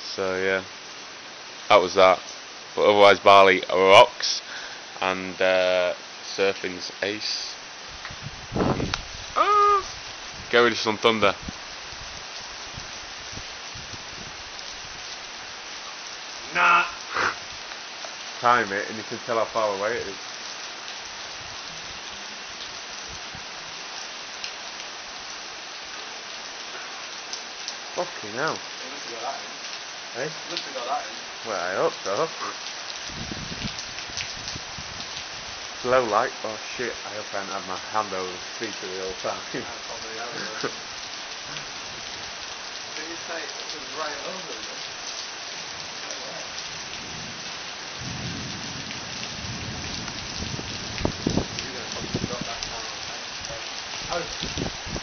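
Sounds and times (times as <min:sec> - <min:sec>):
steady rain hiss: 0:00.0 - 0:55.0
thunder rumbling: 0:08.2 - 0:10.5, 0:46.8 - 0:53.0.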